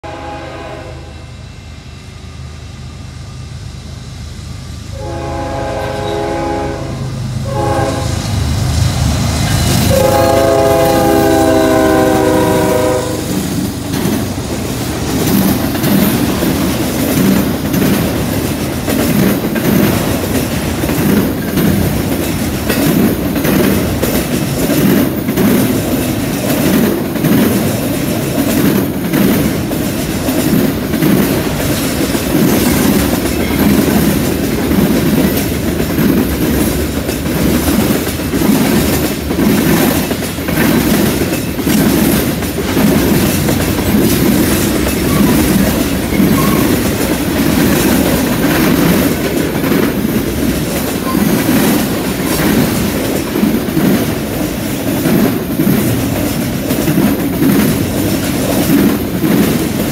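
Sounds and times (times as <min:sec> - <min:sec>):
locomotive air horn blasts: 0:00.0 - 0:01.3, 0:04.9 - 0:08.3, 0:09.9 - 0:13.4
locomotives rumbling past: 0:04.9 - 0:59.9
train wheel clack: 0:07.4 - 0:59.9.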